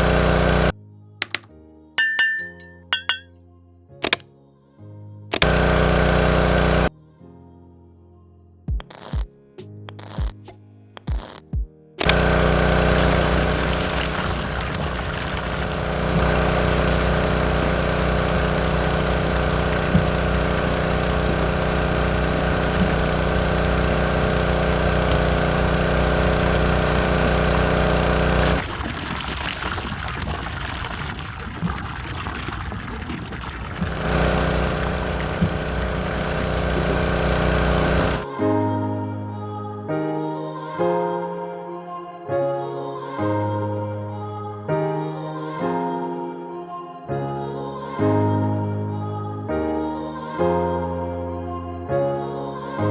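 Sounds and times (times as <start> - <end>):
small motor humming: 0.0 - 1.4, 5.3 - 6.9, 8.8 - 9.3, 9.9 - 10.4, 11.0 - 11.4, 12.0 - 38.3.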